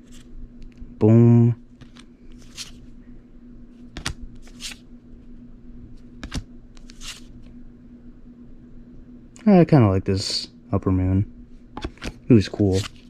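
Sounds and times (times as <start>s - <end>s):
cards sliding swishes: 0.0s - 0.3s, 1.8s - 3.0s, 3.7s - 4.9s, 6.0s - 7.5s, 11.8s - 13.0s.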